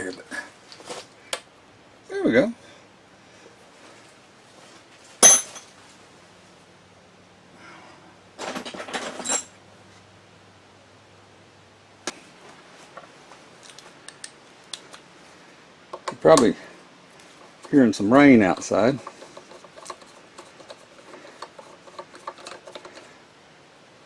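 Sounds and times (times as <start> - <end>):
metal parts clinking and rattling: 5.2 - 5.7, 8.4 - 9.5
metal tools clanking: 5.2 - 5.7.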